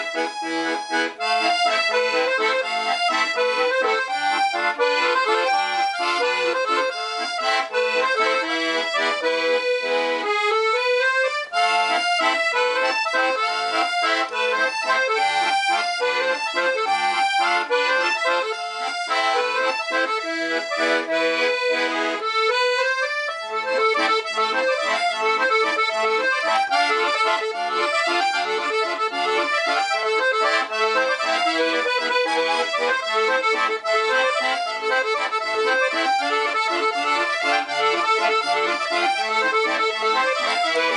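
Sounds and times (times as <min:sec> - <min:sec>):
accordion playing tune: 0:00.0 - 0:40.9.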